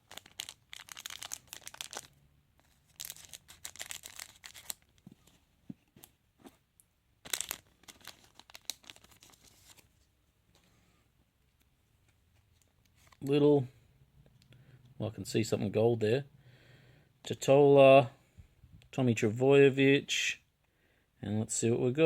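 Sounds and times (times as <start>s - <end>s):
wrapper tearing and crinkling: 0.0s - 5.0s, 7.2s - 9.8s.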